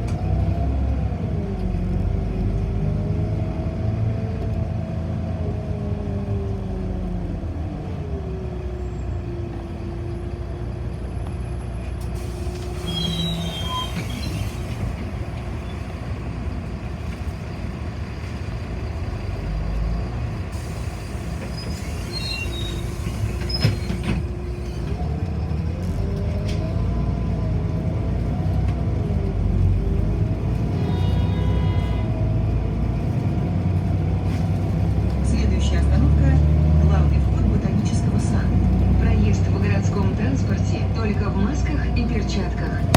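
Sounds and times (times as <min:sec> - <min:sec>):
bus drive whine: 0:00.0 - 0:42.9
low road rumble: 0:00.0 - 0:42.9
faint high squeaks: 0:12.8 - 0:14.6.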